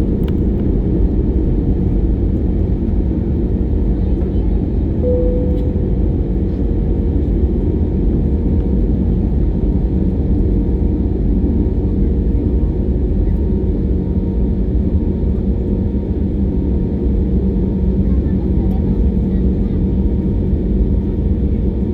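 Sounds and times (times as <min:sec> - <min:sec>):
airliner cabin engine rumble: 0:00.0 - 0:21.9
short tone: 0:05.0 - 0:06.4.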